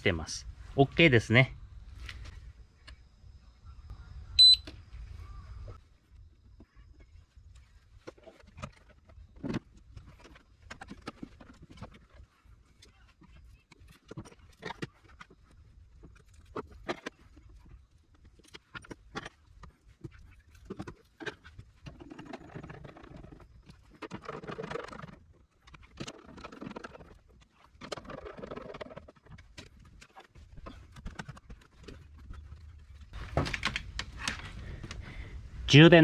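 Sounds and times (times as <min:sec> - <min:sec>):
scraping and rustling: 0:06.6 - 0:35.3.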